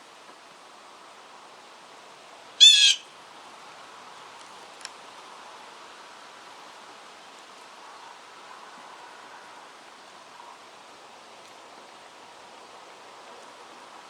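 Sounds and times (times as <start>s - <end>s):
blue jay harsh call: 2.6s - 3.1s.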